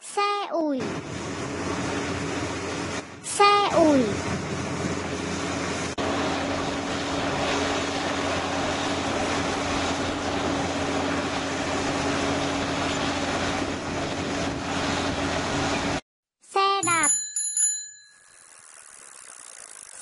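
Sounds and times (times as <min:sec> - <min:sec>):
bulldozer diesel engines droning: 0:00.8 - 0:16.0.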